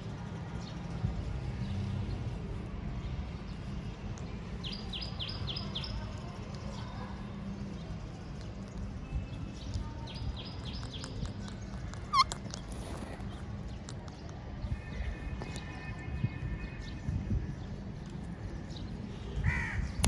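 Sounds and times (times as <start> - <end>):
bird chirping: 9.1 - 13.4.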